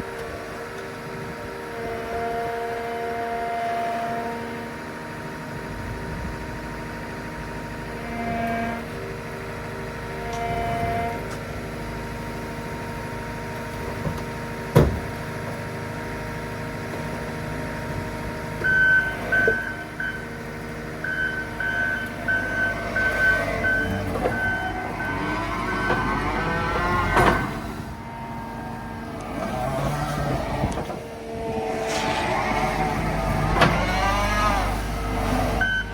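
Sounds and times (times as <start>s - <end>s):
diesel engine running: 0.0s - 35.9s
backup alarm beeping: 18.7s - 20.3s, 21.0s - 26.6s, 35.6s - 35.9s.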